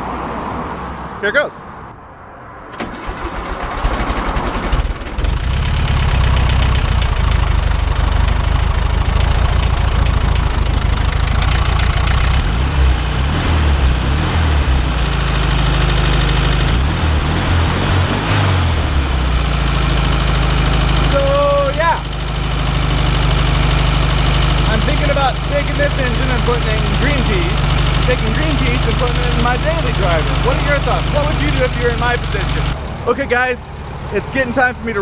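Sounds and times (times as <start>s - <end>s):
starter cranking engine: 2.8s - 32.8s
car engine idling: 3.0s - 35.0s.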